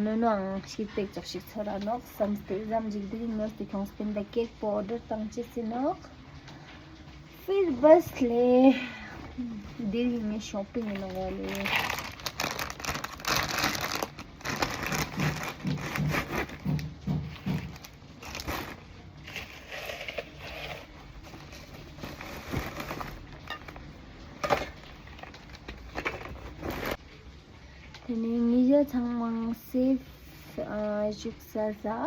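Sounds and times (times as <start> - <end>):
packaging crinkling and rustling: 6.6 - 27.0.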